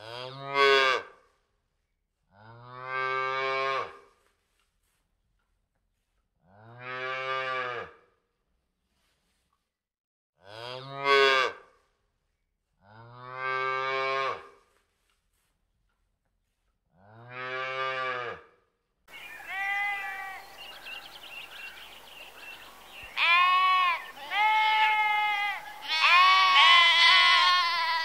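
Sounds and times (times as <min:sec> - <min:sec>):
sheep bleating: 0:19.1 - 0:20.9, 0:23.0 - 0:28.0.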